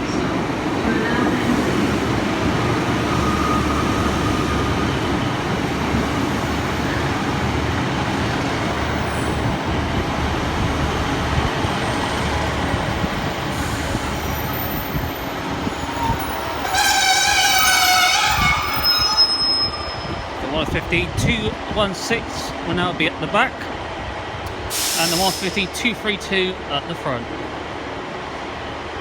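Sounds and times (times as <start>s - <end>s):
wheels on rail: 0.0s - 20.4s
diesel train engines rumbling: 0.0s - 29.0s
high wheel squeal: 3.0s - 5.0s, 13.5s - 20.4s.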